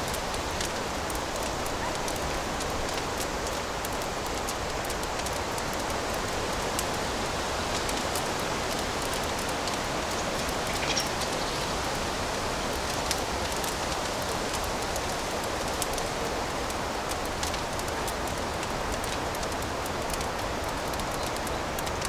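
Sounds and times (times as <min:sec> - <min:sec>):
wood fire crackling: 0:00.0 - 0:22.0
fire pops: 0:07.7 - 0:22.0.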